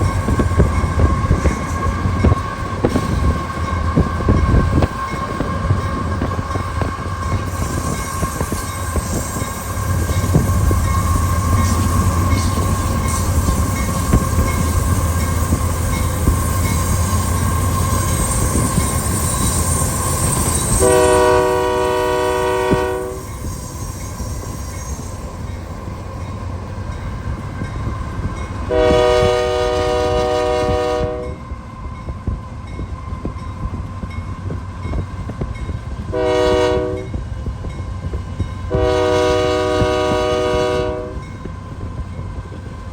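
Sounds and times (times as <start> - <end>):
diesel locomotive engine rumble: 0.0 - 42.9
train wheels rolling: 0.0 - 42.9
train chime horn blasts: 20.4 - 23.5, 28.7 - 31.5, 36.1 - 37.2, 38.7 - 41.4.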